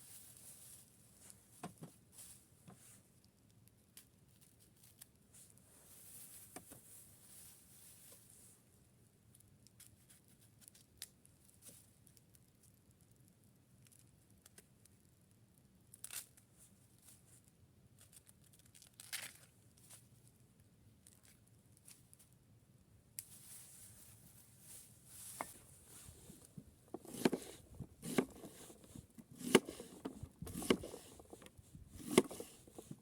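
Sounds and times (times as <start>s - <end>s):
short rustles: 23.3s - 33.0s.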